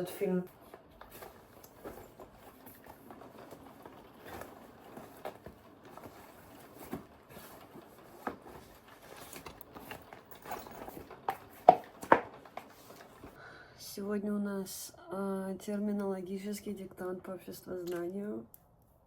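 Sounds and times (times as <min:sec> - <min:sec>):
rustling and light taps: 0:00.5 - 0:13.4.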